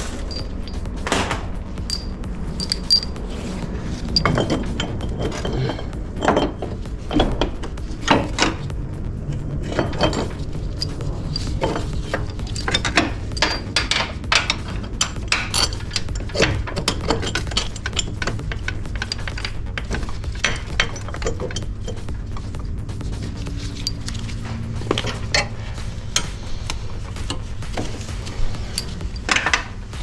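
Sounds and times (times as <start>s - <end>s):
background music: 0.0s - 30.0s
metallic clinks of hand tools: 1.9s - 3.1s.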